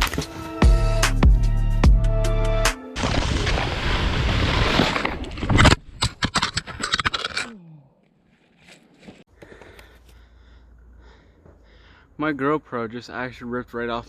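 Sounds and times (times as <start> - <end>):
snowboard scraping over snow: 3.0 - 5.4.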